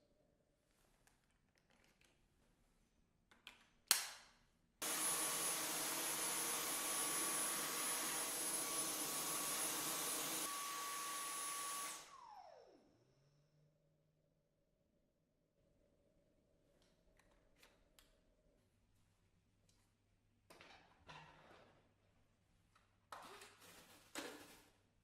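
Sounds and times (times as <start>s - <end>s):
vacuum cleaner motor whining: 4.8s - 13.1s.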